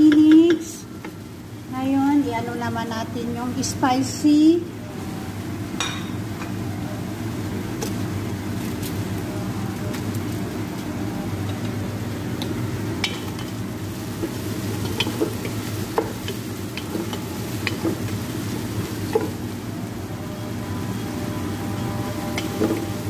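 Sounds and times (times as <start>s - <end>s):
food frying in a pot: 0.0s - 23.0s
wooden spatula stirring and scraping: 13.8s - 19.7s.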